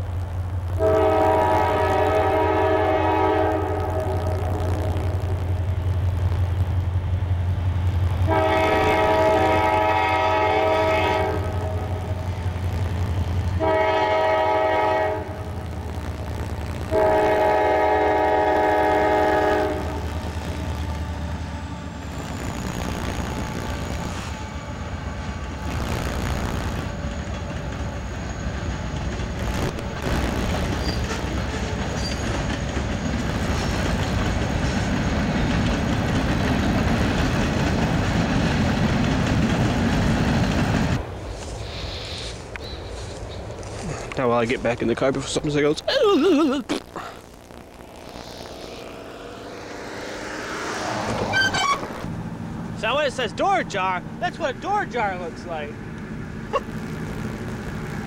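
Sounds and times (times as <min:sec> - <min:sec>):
train wheels rumbling on rails: 0:00.0 - 0:58.0
locomotive air horn blasts: 0:00.8 - 0:04.6, 0:08.3 - 0:11.9, 0:13.6 - 0:15.4, 0:16.9 - 0:20.0.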